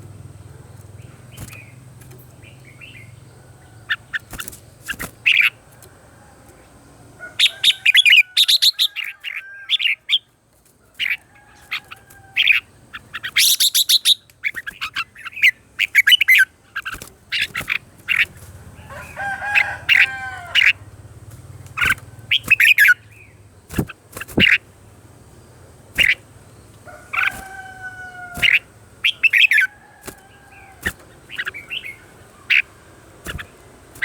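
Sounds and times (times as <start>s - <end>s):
bulbul song: 7.3s - 10.3s, 11.8s - 18.3s, 19.0s - 34.0s.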